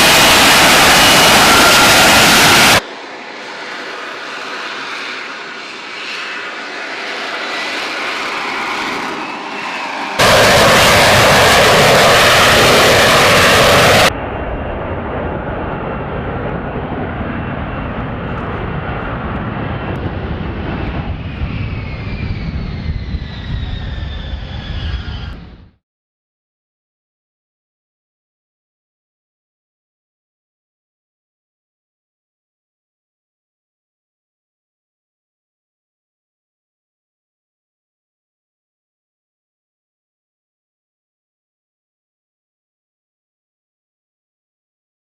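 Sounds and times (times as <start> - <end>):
jet fighter engine roar: 0.0 - 25.8
jet passing by: 0.0 - 25.8.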